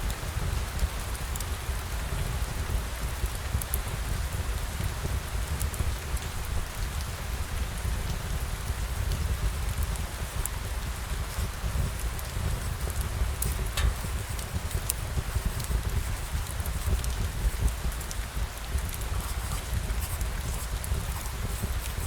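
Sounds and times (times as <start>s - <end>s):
steady rain hiss: 0.0s - 22.0s
raindrop ticks: 8.1s - 22.0s.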